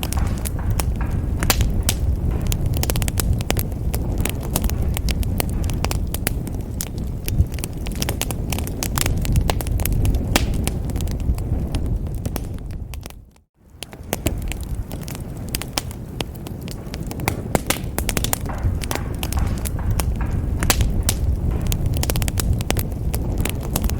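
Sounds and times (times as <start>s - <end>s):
low rumble of flames: 0.0s - 23.9s
wood fire crackling: 0.0s - 23.9s.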